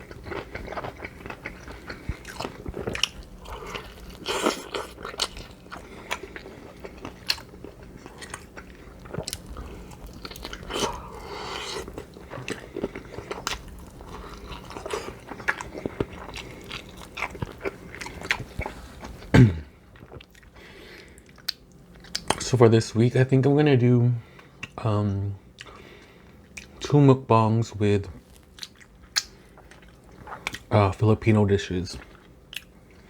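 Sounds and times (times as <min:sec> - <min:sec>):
person chewing crunchy food: 0:00.0 - 0:22.4, 0:25.5 - 0:26.8, 0:28.2 - 0:30.7, 0:32.0 - 0:33.0.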